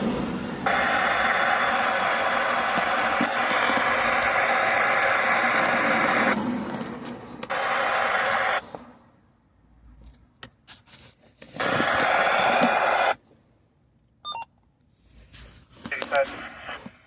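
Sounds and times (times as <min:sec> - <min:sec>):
radio static hiss: 0:00.7 - 0:06.4, 0:07.5 - 0:08.7, 0:11.6 - 0:13.2, 0:15.9 - 0:17.0
short beep tone: 0:14.2 - 0:14.5.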